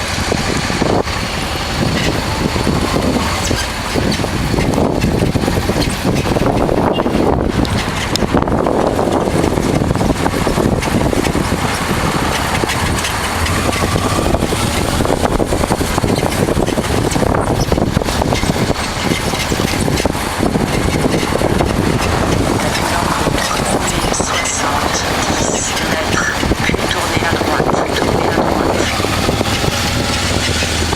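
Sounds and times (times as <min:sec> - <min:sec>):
motorcycle engine running: 0:00.0 - 0:30.9
wind and road noise: 0:00.0 - 0:30.9.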